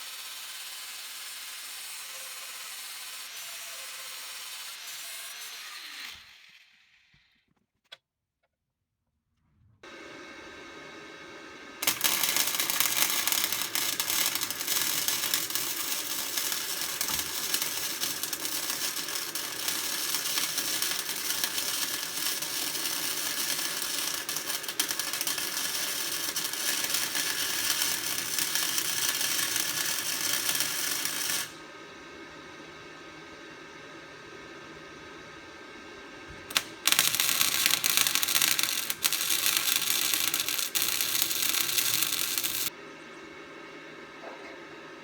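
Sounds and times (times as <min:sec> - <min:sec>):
cooling fan humming: 0:09.9 - 0:45.0
welding arc crackling: 0:11.8 - 0:31.6, 0:36.5 - 0:42.7.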